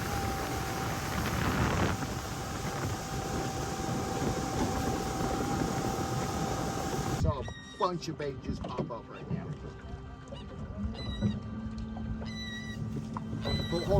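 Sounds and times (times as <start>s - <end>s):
thin steady whine: 0.0s - 7.4s
wind buffeting microphone: 0.0s - 7.5s.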